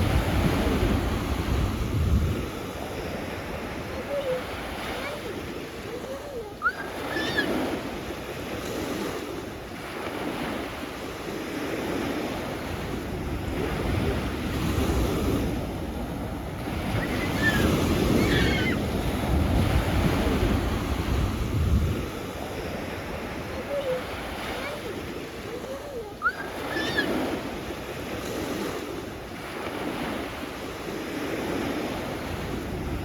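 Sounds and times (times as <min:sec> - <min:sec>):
wind buffeting microphone: 0:00.0 - 0:05.8, 0:12.0 - 0:25.7
sea waves washing onto shore: 0:00.0 - 0:33.0.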